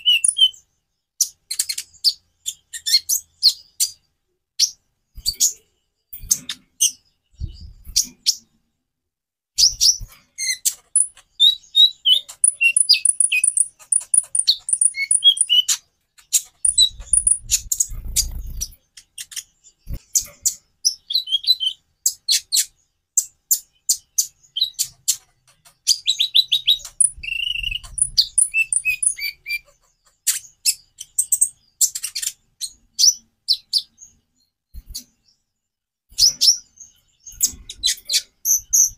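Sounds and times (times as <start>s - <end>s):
sunbird singing chirps and trills: 0.0s - 4.0s, 9.6s - 35.5s
soft low thuds: 7.4s - 8.0s.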